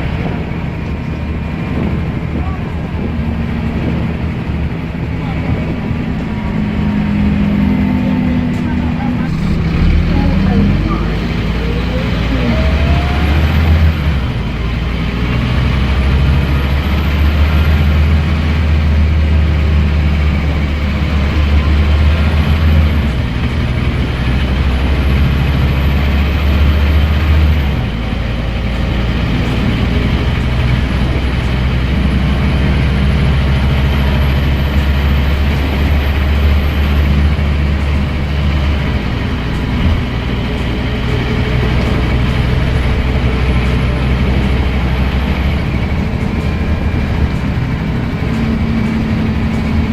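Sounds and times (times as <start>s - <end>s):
bus diesel engine pulling hard: 0.0s - 49.9s
high gearbox whine: 9.3s - 19.2s.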